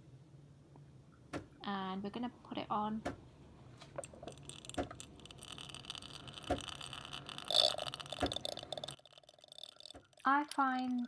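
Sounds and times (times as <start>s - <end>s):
coffee machine humming and hissing: 4.6s - 8.8s.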